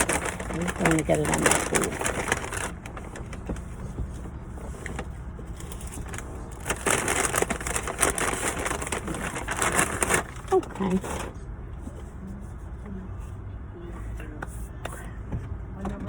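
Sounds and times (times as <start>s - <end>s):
food wrappers crinkling: 0.0s - 3.7s, 5.5s - 10.8s.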